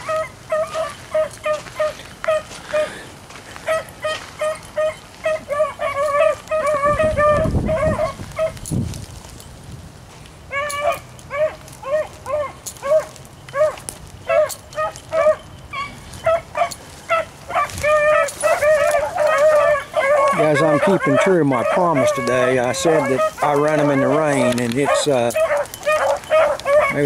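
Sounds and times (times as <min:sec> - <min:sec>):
dogs barking: 0:00.0 - 0:08.7, 0:10.5 - 0:27.0.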